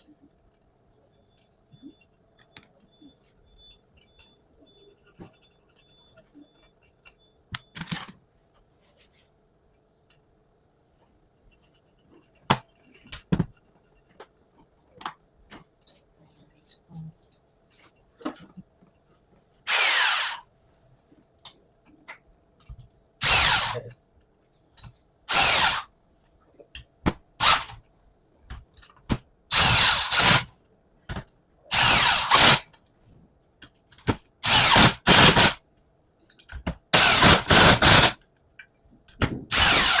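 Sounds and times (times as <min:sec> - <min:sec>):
power driver bursts: 0:19.7 - 0:20.4, 0:23.2 - 0:23.8, 0:25.3 - 0:25.9, 0:27.4 - 0:27.8, 0:29.5 - 0:30.5, 0:31.7 - 0:32.6, 0:34.4 - 0:35.6, 0:37.0 - 0:38.2, 0:39.5 - 0:40.0
clicks and taps of tools: 0:24.8 - 0:25.0, 0:36.0 - 0:36.9.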